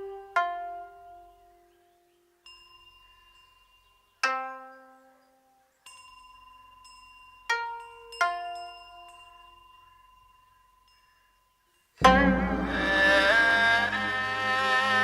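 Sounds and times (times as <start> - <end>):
instrumental music with bowed strings: 0.0 - 1.9, 12.0 - 15.0.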